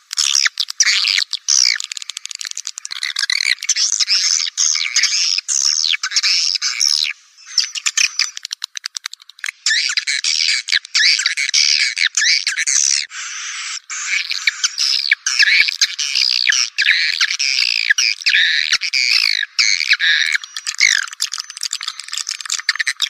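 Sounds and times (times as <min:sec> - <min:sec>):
fast dry clicks: 0:00.0 - 0:04.4, 0:07.6 - 0:09.8, 0:15.3 - 0:23.0
shrill bird chirps and twitters: 0:00.1 - 0:23.0.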